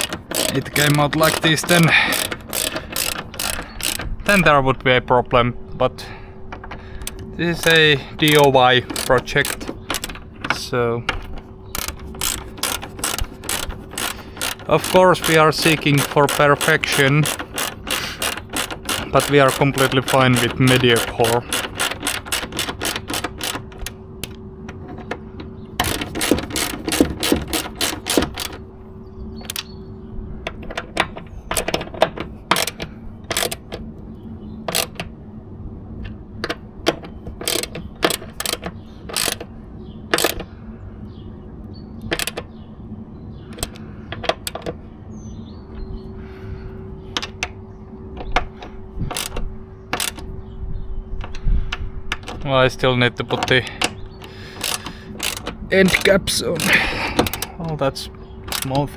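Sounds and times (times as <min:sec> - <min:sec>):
ratchet wrench clicking: 0:00.0 - 0:04.5, 0:07.0 - 0:10.2, 0:11.2 - 0:24.0, 0:25.8 - 0:28.6, 0:32.5 - 0:33.6, 0:37.4 - 0:39.5, 0:49.1 - 0:49.4, 0:54.5 - 0:57.4.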